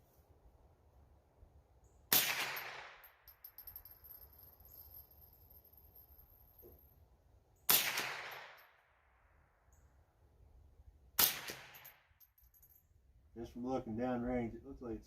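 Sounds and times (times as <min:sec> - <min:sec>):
rifle shots: 0:02.1 - 0:03.1, 0:07.7 - 0:08.6, 0:11.2 - 0:11.9.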